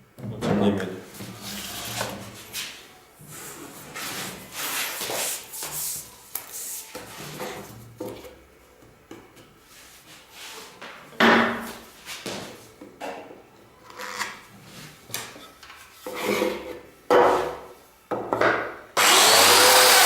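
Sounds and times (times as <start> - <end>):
tool sliding and scraping: 1.1 - 7.8.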